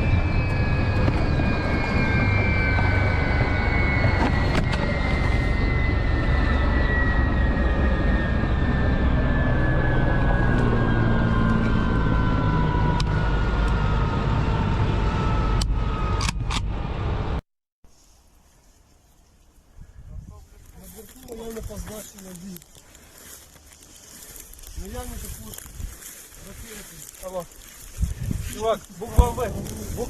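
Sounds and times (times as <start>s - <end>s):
engine rumble: 0.0s - 17.4s, 20.6s - 30.0s
high whine falling in pitch: 0.0s - 17.4s.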